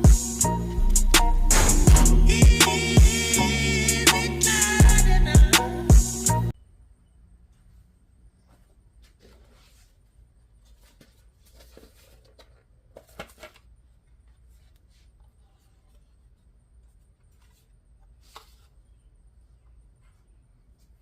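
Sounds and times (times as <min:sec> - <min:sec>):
objects being handled: 0:10.6 - 0:18.8.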